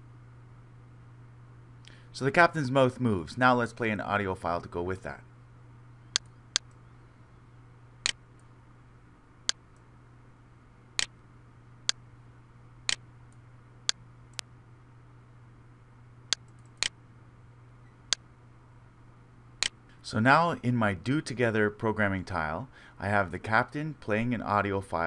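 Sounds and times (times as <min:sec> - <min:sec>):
low steady hum: 0:00.0 - 0:25.0
computer mouse clicking: 0:06.2 - 0:06.8, 0:16.3 - 0:17.0.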